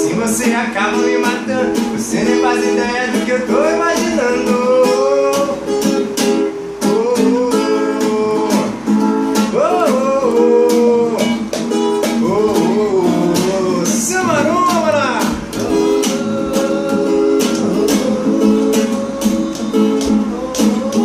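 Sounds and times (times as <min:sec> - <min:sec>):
acoustic guitar strumming: 0:00.0 - 0:21.0
person vocalising long notes: 0:12.2 - 0:21.0.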